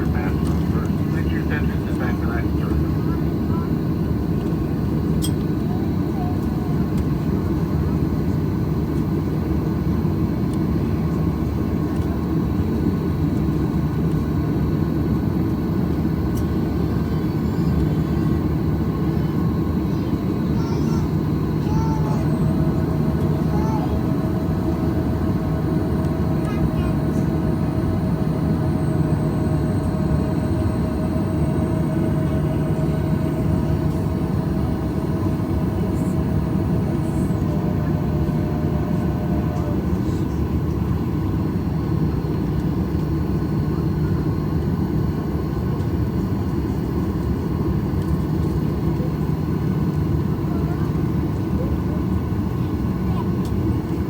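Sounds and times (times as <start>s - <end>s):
airplane cabin engine drone: 0.0s - 54.0s.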